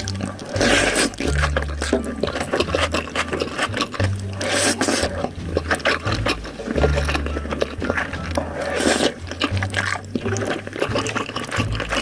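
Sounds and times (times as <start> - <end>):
crisp crunch: 0.0 - 12.0
wet chewing and mouth sounds: 0.0 - 12.0.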